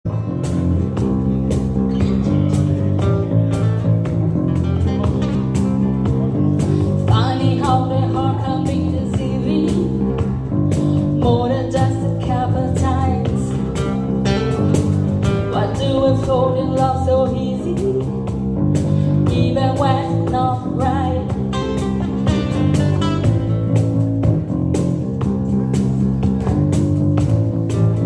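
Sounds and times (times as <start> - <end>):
blues band playing: 0.1 - 28.0
wavering lead guitar melody: 0.1 - 28.0.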